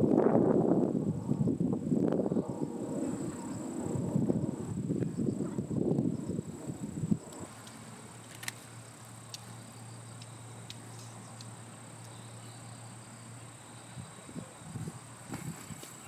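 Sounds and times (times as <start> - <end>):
insects trilling: 0.0 - 16.0
faint clicks: 7.3 - 8.7.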